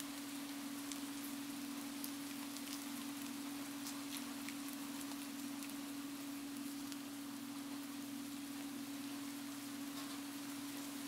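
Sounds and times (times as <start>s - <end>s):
raindrop ticks: 0.0s - 7.2s
rain hissing: 0.0s - 11.0s
steady low hum: 0.0s - 11.0s.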